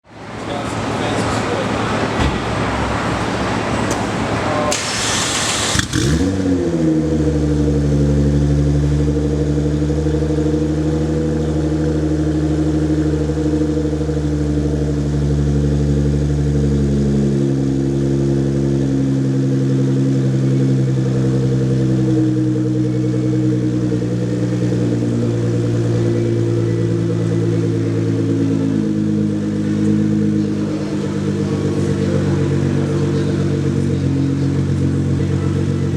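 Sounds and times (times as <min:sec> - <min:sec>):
car engine starting and idling: 0:00.0 - 0:35.9.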